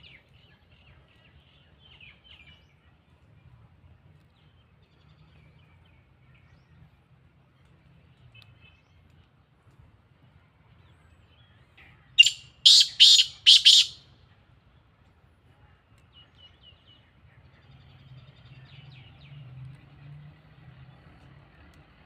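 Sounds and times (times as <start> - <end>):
bird harsh call: 12.2 - 14.0
faint bird chirps: 12.2 - 14.0.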